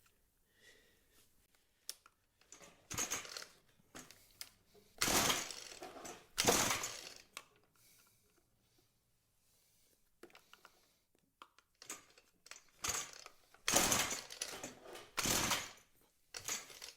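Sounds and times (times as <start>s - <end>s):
pull-start cord rasping: 5.0s - 7.4s, 12.8s - 15.8s.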